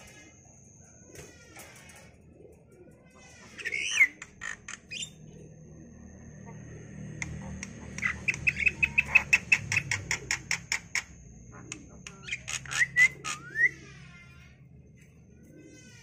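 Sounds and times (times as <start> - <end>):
pet bird chirping: 3.3 - 14.2.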